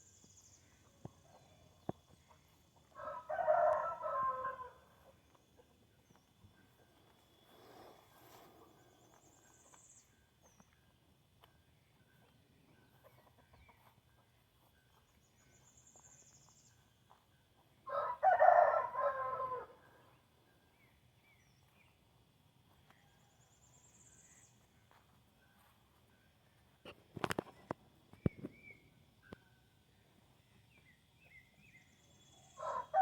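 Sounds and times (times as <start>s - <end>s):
rooster crowing: 2.9s - 5.0s, 17.9s - 20.1s, 32.5s - 33.0s.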